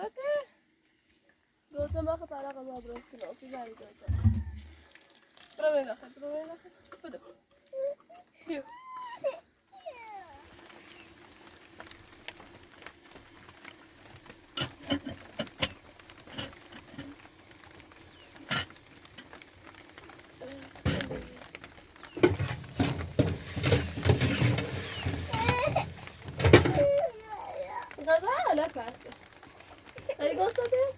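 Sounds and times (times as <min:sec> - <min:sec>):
rustling: 0:00.7 - 0:30.9
dishes and utensils clinking: 0:14.6 - 0:17.2.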